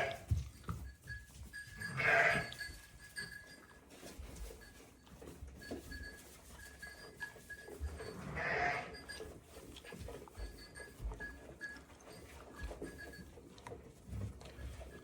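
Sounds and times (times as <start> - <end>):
sheep bleating: 0.0 - 0.3, 1.9 - 2.6, 8.2 - 9.0
faint rustling of flock: 0.0 - 15.0.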